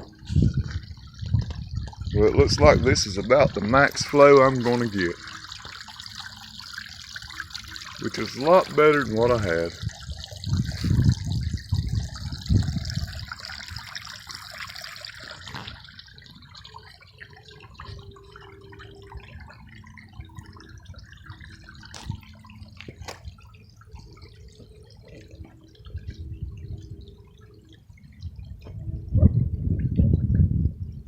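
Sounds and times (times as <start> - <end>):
waterfall splashing into pond: 2.9 - 17.0.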